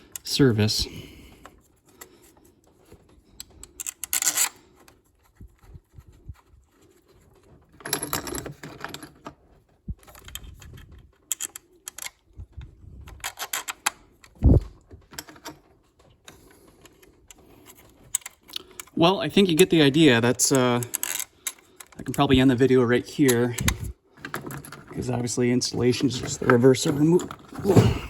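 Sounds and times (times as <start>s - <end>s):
metal tools clinking and rattling: 7.6s - 9.4s, 23.2s - 28.0s.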